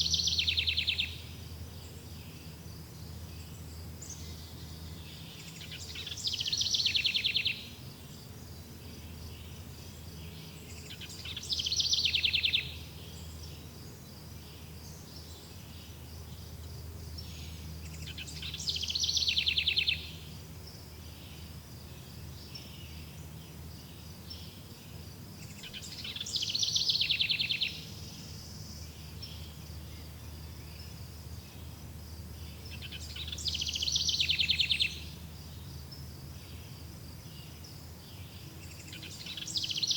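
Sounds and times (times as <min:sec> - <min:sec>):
songbird trilling: 0:00.0 - 0:01.3, 0:03.5 - 0:07.8, 0:10.2 - 0:13.4, 0:17.2 - 0:20.3, 0:25.4 - 0:29.9, 0:32.4 - 0:35.2, 0:38.2 - 0:39.9.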